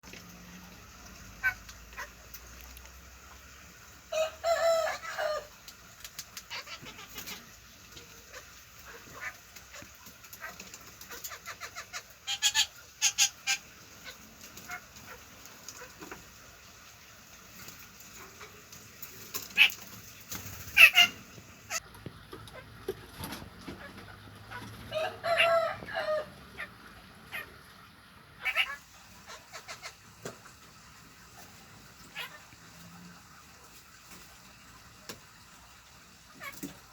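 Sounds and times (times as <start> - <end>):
parrots calling: 1.4 - 2.2, 6.5 - 7.6, 8.2 - 16.0, 19.5 - 19.8, 20.6 - 21.8, 28.4 - 30.1, 32.1 - 32.6
soft parrot chatter: 5.9 - 16.3, 18.1 - 21.8, 28.4 - 30.6, 31.2 - 33.4
parrot squawks: 11.2 - 14.8, 20.8 - 21.8, 28.4 - 30.0.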